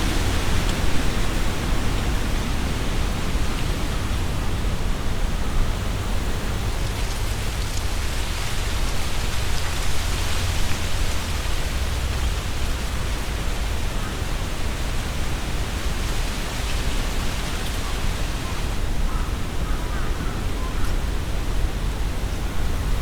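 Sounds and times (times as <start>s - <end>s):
wind through trees: 0.0s - 23.0s
leaves rustling: 5.8s - 19.2s.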